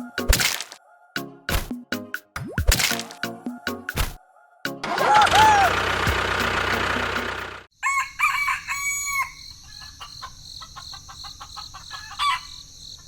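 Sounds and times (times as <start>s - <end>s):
rooster crowing: 4.2s - 6.1s, 7.7s - 10.2s, 11.2s - 12.6s
short fowl call: 4.9s - 5.8s
insects chirring: 7.8s - 13.0s.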